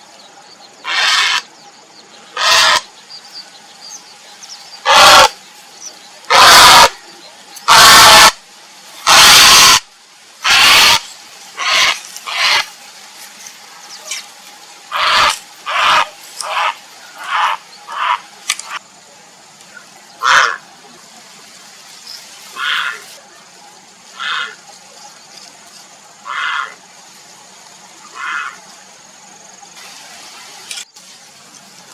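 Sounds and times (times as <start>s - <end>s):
heron croaking calls: 0.8s - 1.5s, 2.4s - 2.9s, 4.8s - 5.3s, 6.3s - 7.0s, 7.7s - 8.4s, 9.0s - 9.8s, 10.4s - 11.0s, 11.6s - 12.7s, 14.9s - 18.2s, 20.2s - 20.6s, 24.2s - 24.6s, 26.2s - 26.8s.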